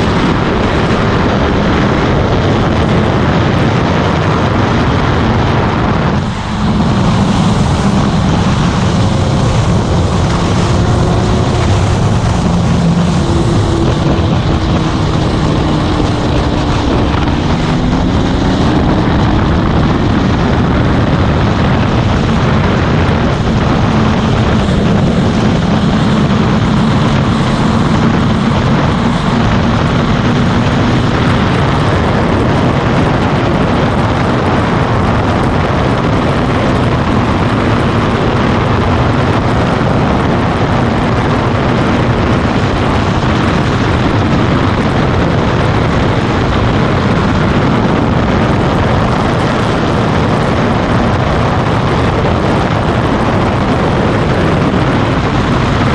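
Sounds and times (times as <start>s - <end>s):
wind rush on microphone: 0.0s - 55.9s.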